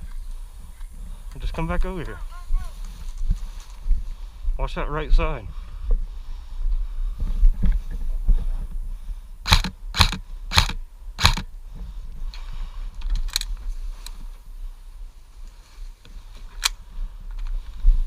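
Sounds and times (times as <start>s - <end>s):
wind rumble on microphone: 0.0s - 18.0s
microphone handling noise: 6.8s - 8.8s
airsoft gun shots: 9.5s - 11.5s.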